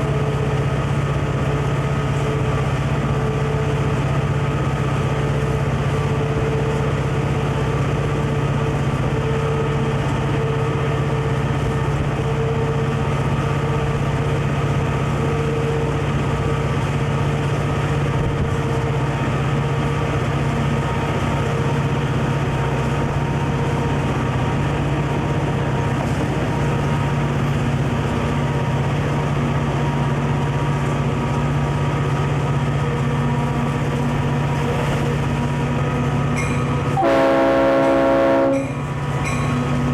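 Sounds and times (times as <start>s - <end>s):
diesel locomotive engine drone: 0.0s - 39.9s.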